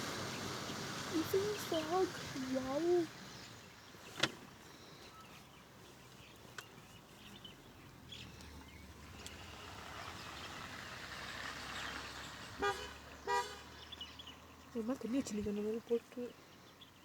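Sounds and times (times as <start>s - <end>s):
vehicle approaching: 0.0s - 16.9s
vehicle horn toot: 12.6s - 13.7s.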